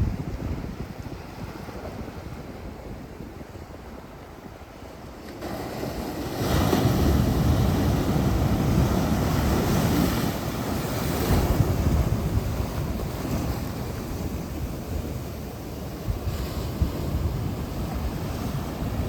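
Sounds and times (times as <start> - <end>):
surf wash rushing: 1.5 - 19.0
ocean wave breaking: 4.9 - 19.0.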